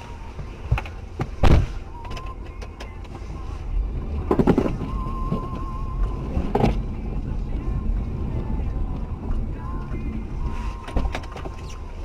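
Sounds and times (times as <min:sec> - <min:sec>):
car driving rumble: 0:00.0 - 0:12.0
wavering whistle-like tone: 0:04.8 - 0:06.4.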